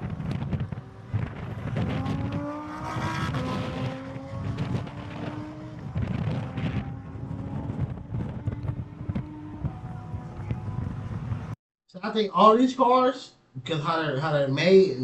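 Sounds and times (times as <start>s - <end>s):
sports car engine accelerating: 0.0s - 11.5s.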